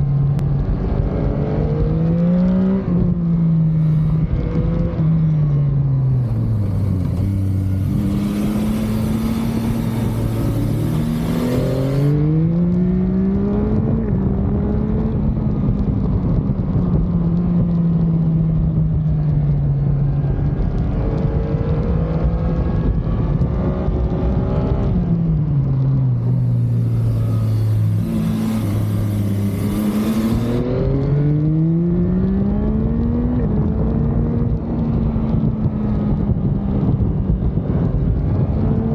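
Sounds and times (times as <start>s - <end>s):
motorcycle engine revving: 0.0s - 17.8s, 19.9s - 38.9s
rushing hiss: 6.2s - 12.2s, 26.2s - 30.6s.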